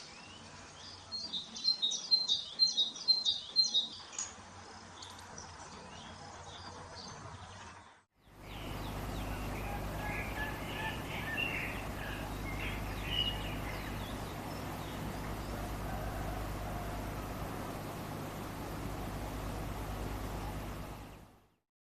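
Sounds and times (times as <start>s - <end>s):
songbirds chirping: 0.0s - 21.6s
low rumble and hiss: 8.2s - 21.6s.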